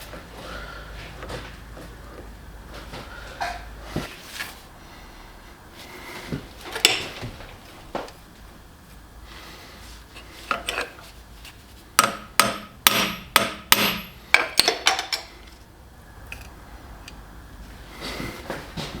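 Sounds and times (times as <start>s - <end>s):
hammer striking metal: 12.0s - 15.3s.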